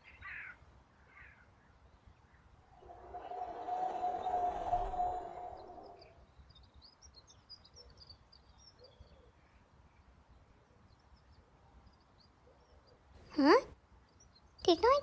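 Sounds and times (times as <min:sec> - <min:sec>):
faint high bird twittering: 0:02.7 - 0:06.2.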